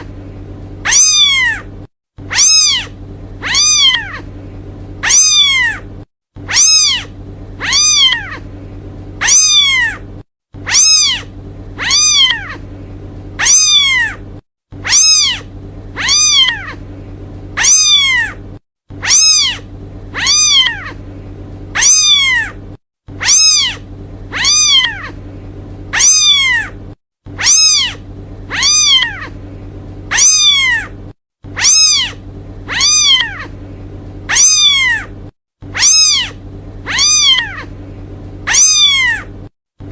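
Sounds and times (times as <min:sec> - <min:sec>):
faint low hum: 0:00.0 - 0:39.9
kitten meowing: 0:00.8 - 0:01.7, 0:02.3 - 0:04.3, 0:05.0 - 0:05.9, 0:06.5 - 0:08.5, 0:09.2 - 0:10.0, 0:10.6 - 0:12.6, 0:13.4 - 0:14.2, 0:14.8 - 0:16.8, 0:17.6 - 0:18.4, 0:19.0 - 0:21.0, 0:21.8 - 0:22.6, 0:23.2 - 0:25.2, 0:25.9 - 0:26.8, 0:27.4 - 0:29.4, 0:30.1 - 0:30.9, 0:31.6 - 0:33.6, 0:34.3 - 0:35.1, 0:35.7 - 0:37.7, 0:38.5 - 0:39.3.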